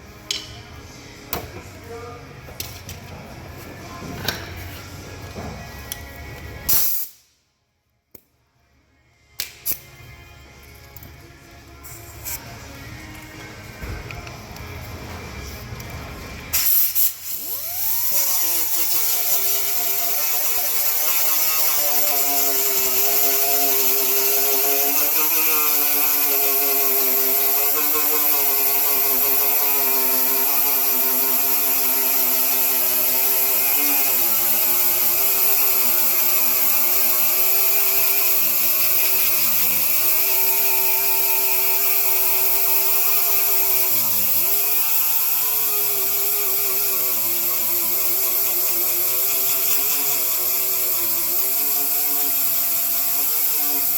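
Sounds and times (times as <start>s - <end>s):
power tool running under load: 13.8s - 53.9s.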